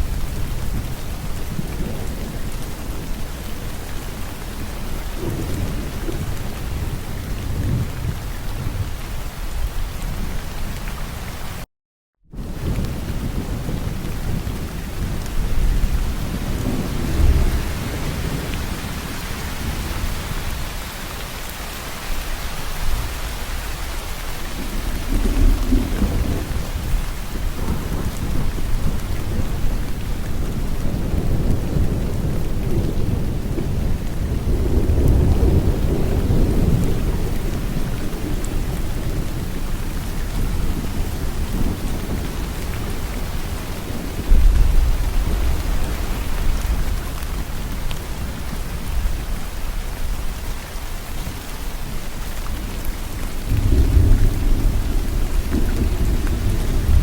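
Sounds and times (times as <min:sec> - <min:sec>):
steady rain falling: 0:00.0 - 0:11.7, 0:12.3 - 0:57.0
thunder rolling: 0:12.4 - 0:20.7, 0:23.9 - 0:50.4, 0:52.7 - 0:57.0.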